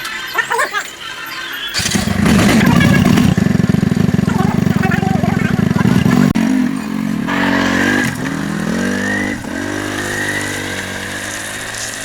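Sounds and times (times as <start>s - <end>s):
tractor engine revving: 1.7s - 12.0s.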